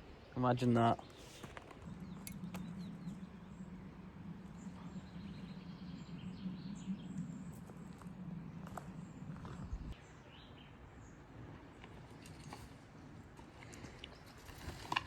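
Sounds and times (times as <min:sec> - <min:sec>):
steady low hum: 0:00.0 - 0:15.0
faint bird chirps: 0:00.1 - 0:11.2.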